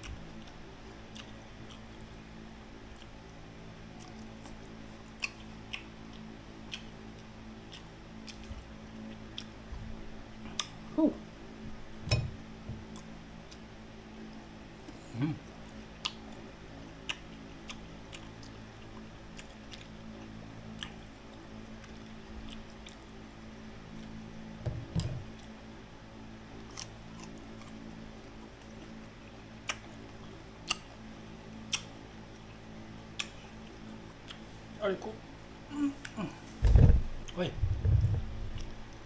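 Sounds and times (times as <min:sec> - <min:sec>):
steady low hum: 0:00.0 - 0:39.0
crisp chewing: 0:14.8 - 0:24.3, 0:26.6 - 0:34.8, 0:35.9 - 0:39.0
low bump: 0:36.6 - 0:38.6.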